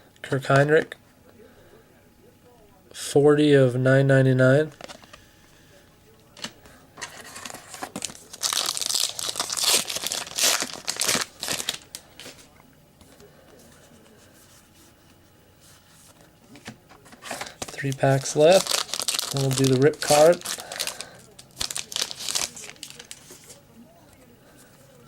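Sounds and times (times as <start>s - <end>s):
card pack wrapper crinkling and tearing: 6.4s - 12.4s, 17.2s - 23.5s.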